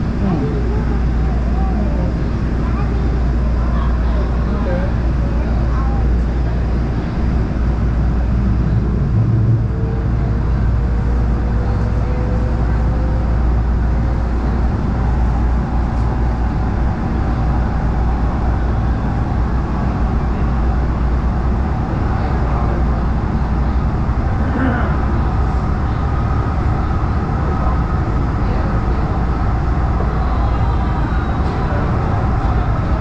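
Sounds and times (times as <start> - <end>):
train rumbling on rails: 0.0 - 33.0
faint rising whine: 7.8 - 13.7.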